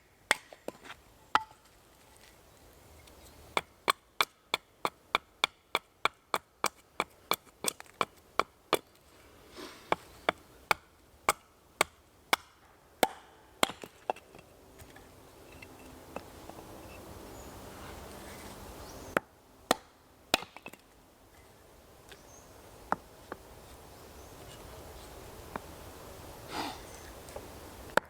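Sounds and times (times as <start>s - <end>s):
wood chopping strikes: 0.3s - 1.6s, 9.9s - 14.2s, 19.2s - 20.8s.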